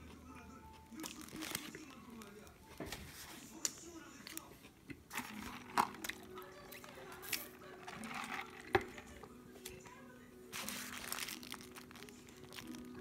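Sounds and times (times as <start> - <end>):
chewing crunchy fried chicken: 0.0 - 2.5.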